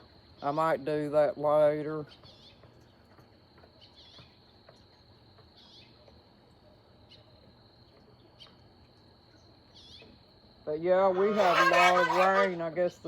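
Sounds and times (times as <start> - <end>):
high insect drone: 9.2 - 13.0
faint bird chirps: 9.3 - 10.2.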